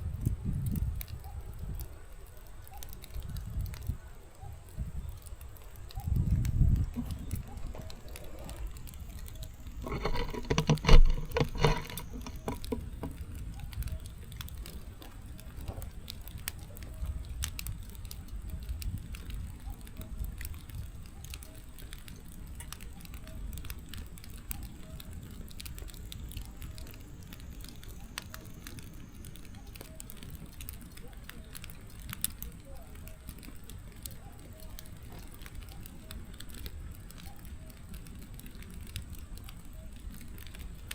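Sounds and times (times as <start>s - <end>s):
firewood crackling and popping: 0.0s - 40.9s
steady rush of flames: 0.0s - 40.9s.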